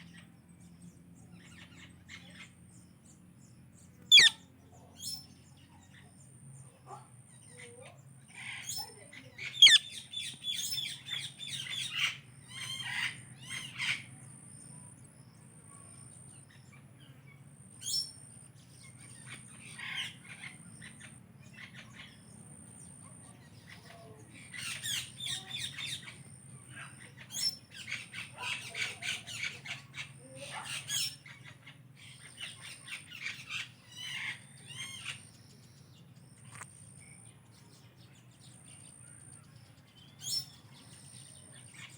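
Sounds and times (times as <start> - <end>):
parakeets chattering and calling: 3.9 - 6.2, 6.8 - 37.4.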